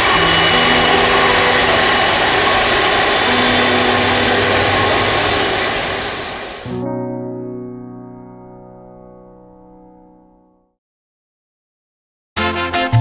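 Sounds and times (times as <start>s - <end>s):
jet engines roaring: 0.0s - 6.8s
piano music: 0.0s - 10.8s.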